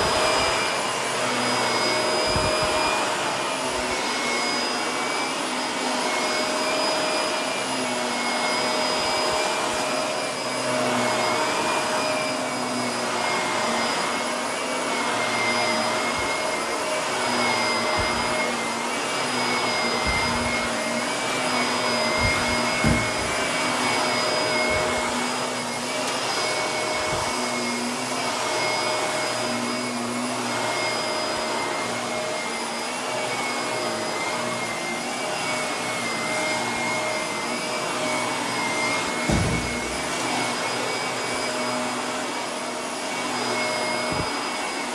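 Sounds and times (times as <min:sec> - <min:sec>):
vacuum cleaner motor whine: 0:00.0 - 0:44.9
sharp knock: 0:39.3 - 0:40.1
low thumps: 0:39.3 - 0:40.2.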